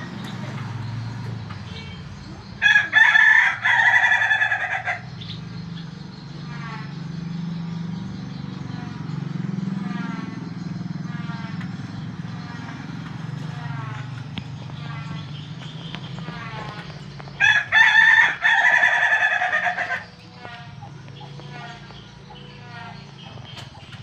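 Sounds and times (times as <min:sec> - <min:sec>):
steady low hum: 0:00.0 - 0:24.0
rooster crowing: 0:02.6 - 0:05.1, 0:17.4 - 0:20.6.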